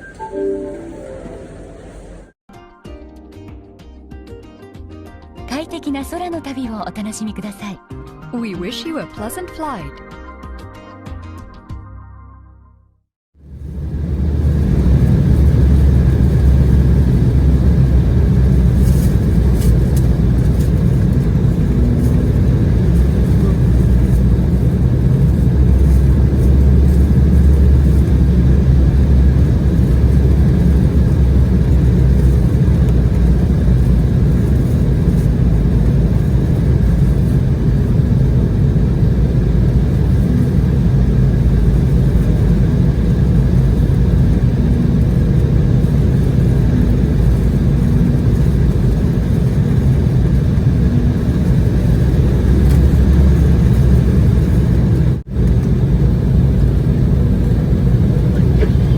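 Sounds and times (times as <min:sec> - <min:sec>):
faint steady tones: 0:00.0 - 0:02.4
jet cabin engine rumble: 0:00.0 - 0:02.4, 0:13.4 - 0:58.9.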